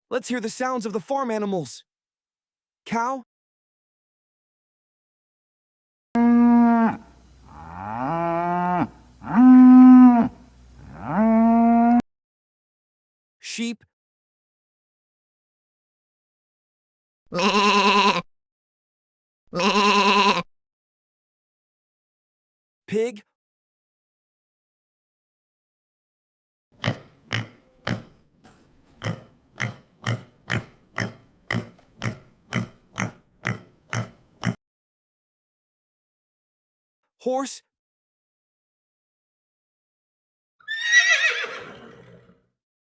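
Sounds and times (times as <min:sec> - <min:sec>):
cow mooing: 0:06.2 - 0:12.0
pig grunting: 0:26.8 - 0:34.6.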